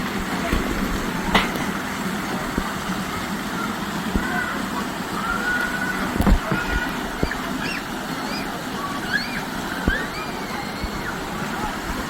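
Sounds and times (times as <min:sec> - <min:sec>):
dull thumps: 0:00.2 - 0:01.7.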